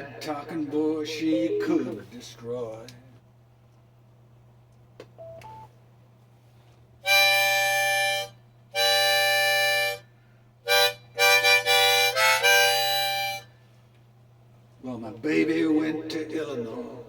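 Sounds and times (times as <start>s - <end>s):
harmonica playing: 7.0s - 10.0s, 10.6s - 13.5s.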